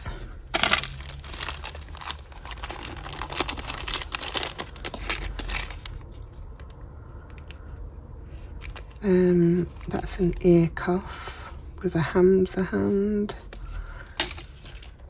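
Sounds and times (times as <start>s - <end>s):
plastic bags crinkling: 0.0s - 6.6s, 13.5s - 15.0s.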